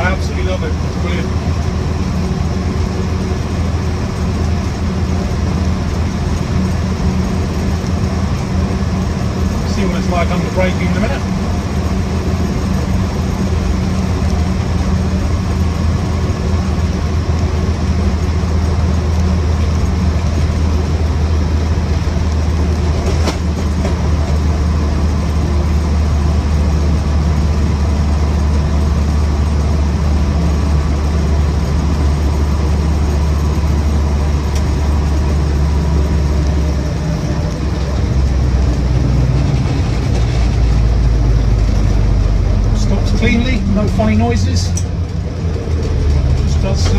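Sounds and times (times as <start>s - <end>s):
car engine droning: 0.0s - 46.9s.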